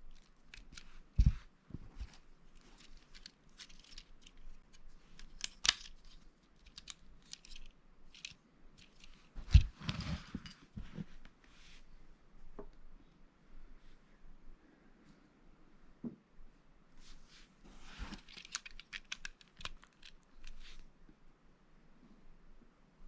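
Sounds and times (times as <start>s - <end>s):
plastic pieces clicking together: 0.0s - 1.0s, 2.7s - 9.2s, 18.3s - 20.6s
rustling: 0.0s - 12.0s, 17.0s - 20.9s.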